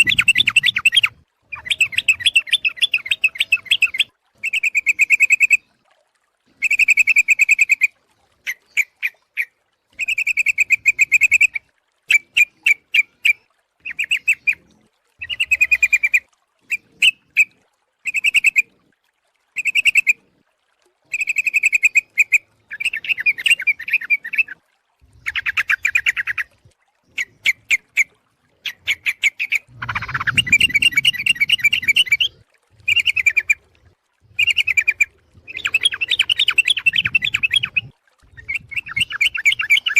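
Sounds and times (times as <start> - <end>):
bird bubbling chatter calls: 0.0 - 5.6, 21.1 - 39.9.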